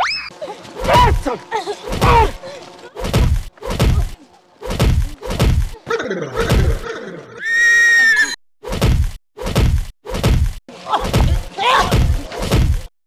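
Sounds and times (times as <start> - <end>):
punch and whack sound effects: 0.8 - 1.2, 1.9 - 2.4, 3.0 - 5.8, 6.4 - 6.8, 8.7 - 12.9.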